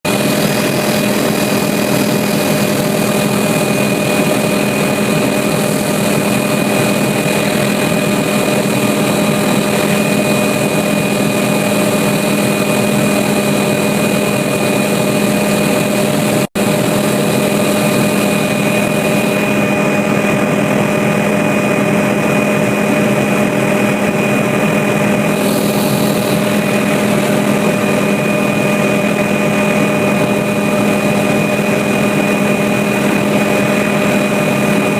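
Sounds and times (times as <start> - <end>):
aircraft engine drone: 0.0 - 34.9.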